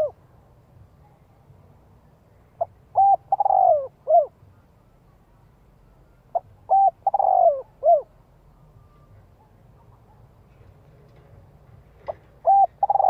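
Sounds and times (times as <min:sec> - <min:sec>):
dove cooing: 0:02.6 - 0:04.4, 0:06.3 - 0:08.2, 0:11.9 - 0:13.0.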